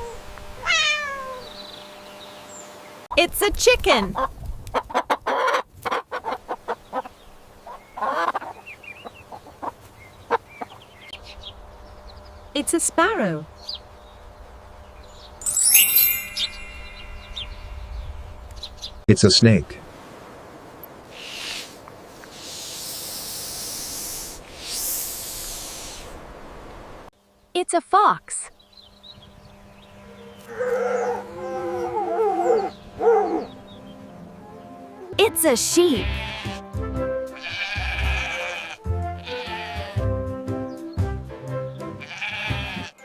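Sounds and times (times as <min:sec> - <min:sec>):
chicken clucking: 0:04.2 - 0:10.7
faint high chirps: 0:15.4 - 0:18.7
snake hissing: 0:21.1 - 0:26.2.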